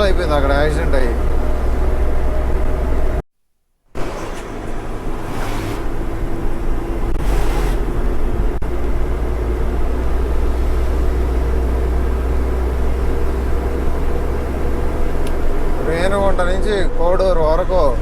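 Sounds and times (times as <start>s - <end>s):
lorry engine and road rumble: 0.0s - 3.2s, 3.9s - 18.0s
short air hisses: 4.0s - 6.1s, 7.2s - 7.9s.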